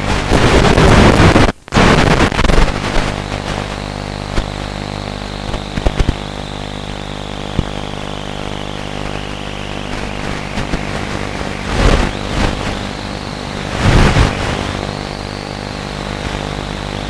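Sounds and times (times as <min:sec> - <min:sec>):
noisy rushes: 0:00.0 - 0:17.0
model plane motor whine: 0:04.3 - 0:17.0.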